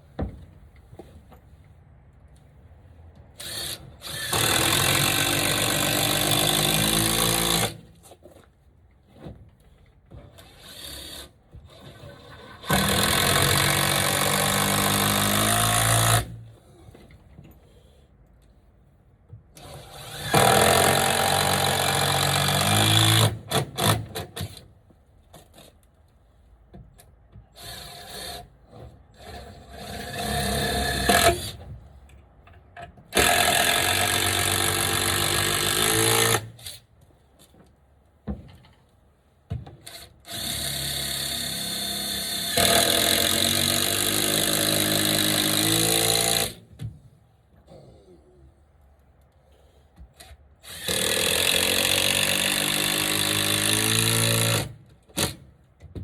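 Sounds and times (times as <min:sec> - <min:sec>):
power drill driving screws: 0:03.4 - 0:07.8, 0:10.4 - 0:16.3, 0:19.6 - 0:24.2, 0:33.2 - 0:36.7, 0:39.8 - 0:46.6, 0:50.2 - 0:55.4.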